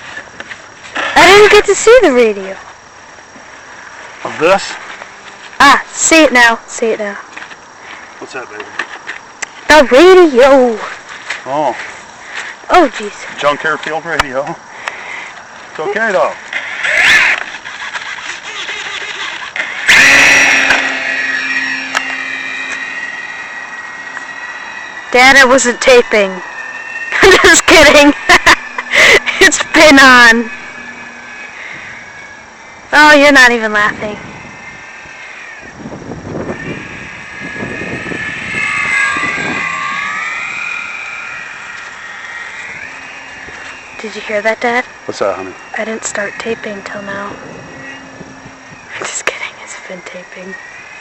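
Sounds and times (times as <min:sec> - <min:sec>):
electric motor and propeller whine: 0:00.0 - 0:51.0
wind noise on microphone: 0:16.7 - 0:50.7.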